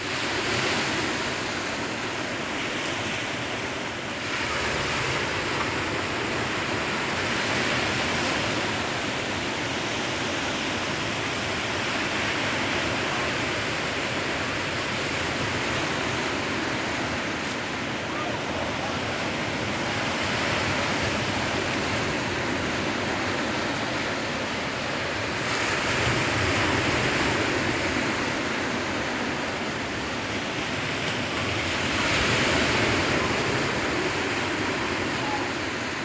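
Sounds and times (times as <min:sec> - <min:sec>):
sea waves washing on shore: 0:00.0 - 0:36.0.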